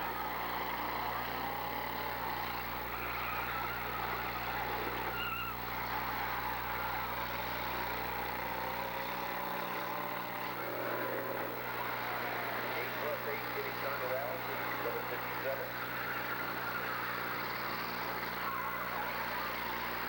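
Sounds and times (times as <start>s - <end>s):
car engines revving: 5.8s - 20.0s.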